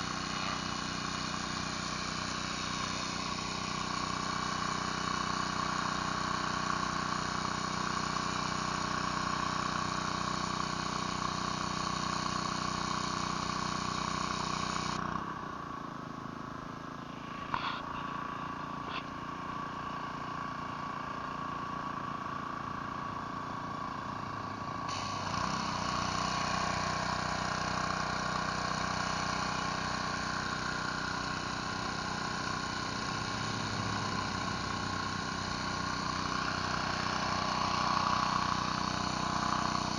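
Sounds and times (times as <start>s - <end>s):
pressure washer engine running: 0.0s - 39.9s
hissing water spray: 24.9s - 39.9s.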